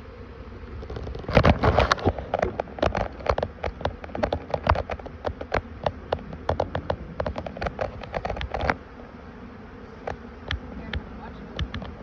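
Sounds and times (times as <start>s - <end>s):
honeybees buzzing: 0.0s - 12.0s
sharp clicks and taps: 10.0s - 12.0s.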